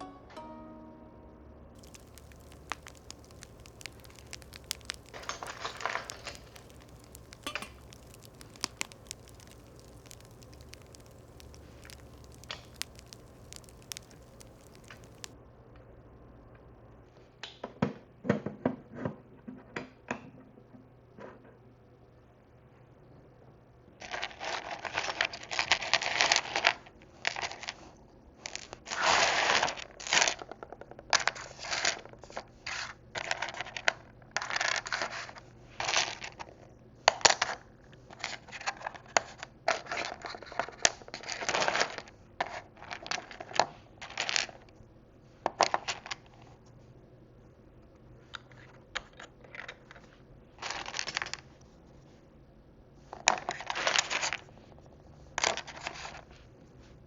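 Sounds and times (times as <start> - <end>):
plastic pieces scratching and rustling: 1.8 - 15.3
sharp plastic clicks: 1.8 - 15.4.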